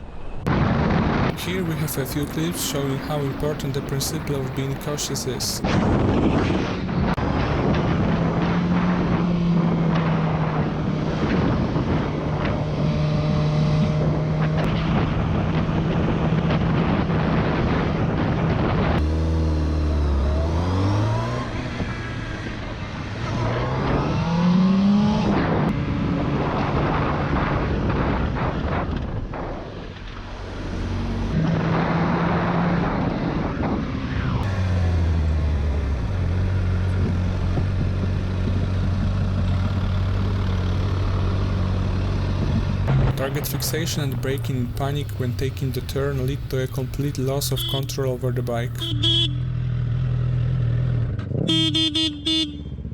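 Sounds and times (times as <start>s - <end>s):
motorcycle engines revving: 34.4s - 52.8s.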